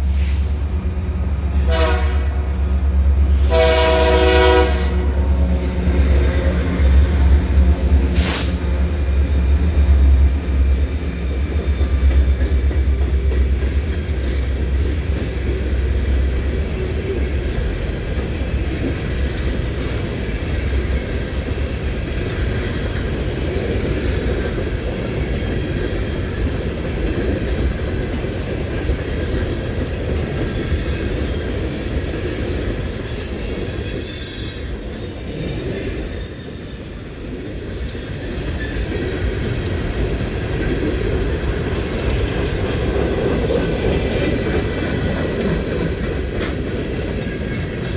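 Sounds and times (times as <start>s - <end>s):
train rumbling on rails: 0.0s - 47.9s
high wheel squeal: 24.0s - 38.9s.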